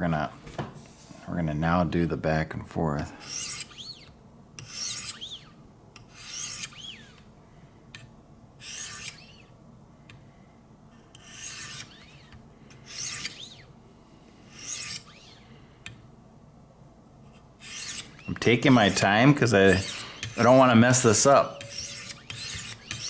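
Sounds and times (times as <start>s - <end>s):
knife rasping on sharpening stone: 3.2s - 5.4s, 6.1s - 7.2s, 8.6s - 9.4s, 11.2s - 12.1s, 14.5s - 15.1s, 17.6s - 23.0s.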